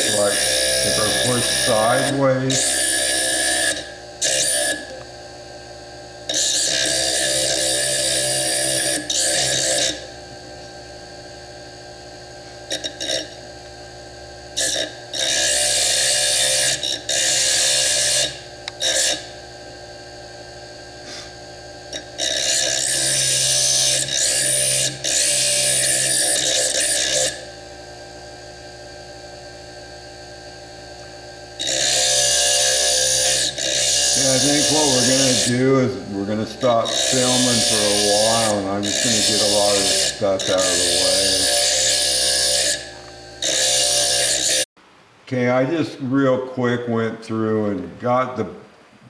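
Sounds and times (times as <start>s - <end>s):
slitting disc grinding stone: 0.0s - 5.1s, 6.3s - 10.1s, 12.7s - 13.4s, 14.6s - 19.4s, 21.9s - 27.5s, 31.6s - 44.7s
bench lathe running: 0.0s - 11.2s, 11.8s - 28.1s, 30.7s - 44.7s.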